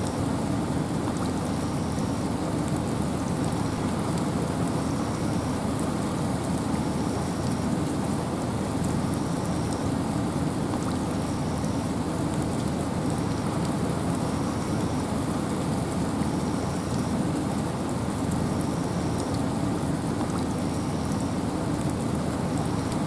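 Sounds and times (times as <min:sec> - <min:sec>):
raindrop ticks: 0:10.6 - 0:15.0, 0:18.3 - 0:23.0.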